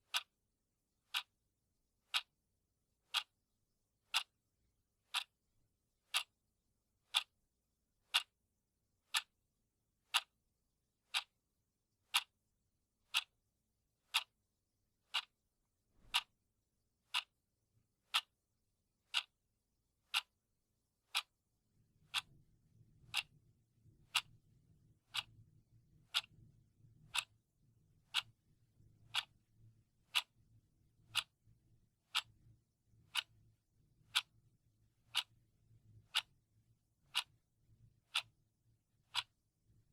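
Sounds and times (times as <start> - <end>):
clock ticking: 0.0 - 0.3, 1.1 - 1.3, 2.1 - 2.3, 3.1 - 3.4, 4.1 - 4.4, 5.1 - 5.4, 6.1 - 6.4, 7.1 - 7.3, 8.1 - 8.4, 9.1 - 9.3, 10.1 - 10.4, 11.1 - 11.4, 12.1 - 12.4, 13.1 - 13.4, 14.1 - 14.4, 15.1 - 15.4, 16.0 - 16.4, 17.1 - 17.4, 18.1 - 18.3, 19.1 - 19.4, 20.1 - 20.4, 21.1 - 21.4, 22.1 - 22.3, 23.1 - 23.4, 24.1 - 24.3, 25.1 - 25.4, 26.1 - 26.4, 27.1 - 27.4, 28.1 - 28.4, 29.1 - 29.4, 30.1 - 30.3, 31.1 - 31.4, 32.1 - 32.4, 33.1 - 33.4, 34.1 - 34.4, 35.1 - 35.3, 36.1 - 36.4, 37.1 - 37.4, 38.1 - 38.4, 39.0 - 39.4.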